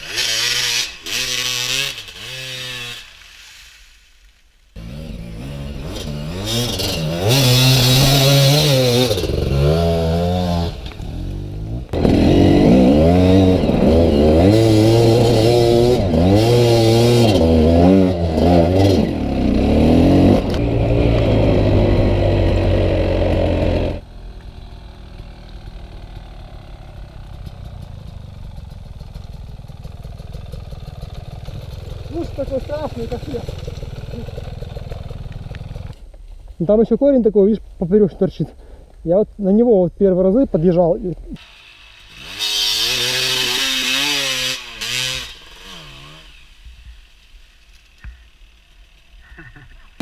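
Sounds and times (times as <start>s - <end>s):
two-stroke motorcycle engine revving: 0.0s - 3.1s, 4.8s - 24.1s, 24.8s - 36.0s, 41.4s - 47.2s
distant steady engine: 4.9s - 36.2s.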